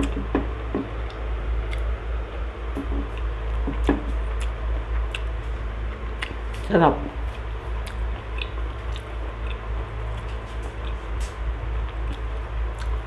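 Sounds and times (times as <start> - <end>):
steady low hum: 0.0 - 13.0
person chewing with mouth clicks: 1.0 - 2.0, 2.8 - 6.7, 7.3 - 11.1, 11.9 - 13.0.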